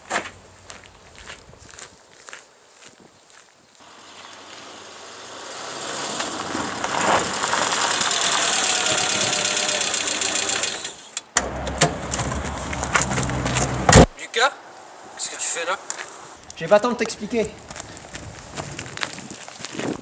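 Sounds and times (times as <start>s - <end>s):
low engine hum: 3.8s - 14.1s
car engine running: 4.0s - 14.1s
sharp bang: 13.4s - 14.2s.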